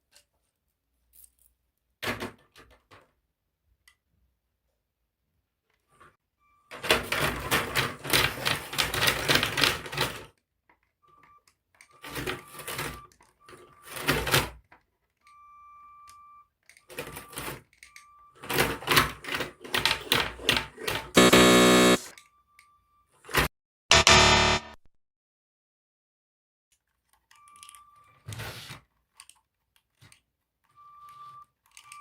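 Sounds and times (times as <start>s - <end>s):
plastic gears clattering: 6.8s - 10.9s, 28.9s - 30.3s, 31.6s - 32.0s
motor whine: 21.2s - 22.1s
short buzz: 21.2s - 22.1s, 23.9s - 24.8s.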